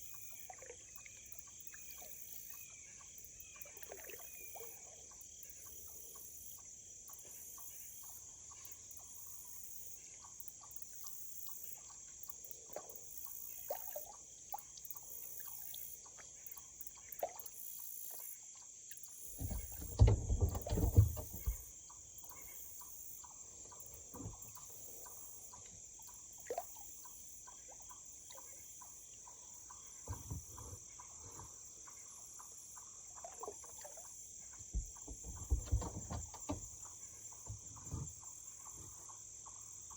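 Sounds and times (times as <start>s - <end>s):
kayak paddle dipping in water: 19.2s - 22.5s, 23.3s - 39.9s.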